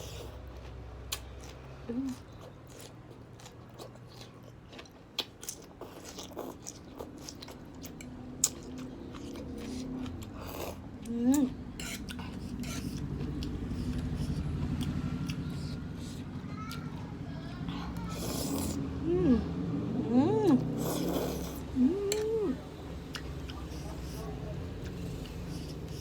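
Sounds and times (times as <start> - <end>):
noodles being chewed: 0.0 - 18.8, 20.5 - 26.0
person humming: 19.0 - 20.7, 21.6 - 22.6.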